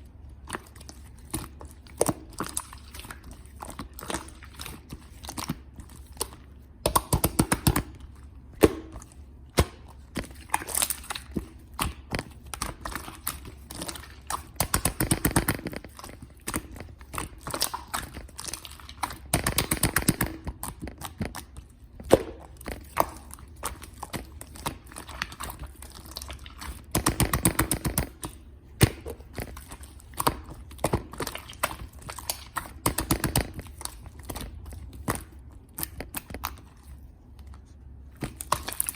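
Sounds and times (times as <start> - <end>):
hands kneading clay: 0.0 - 38.9
rapid sticky clicking: 6.2 - 8.0, 26.8 - 28.4.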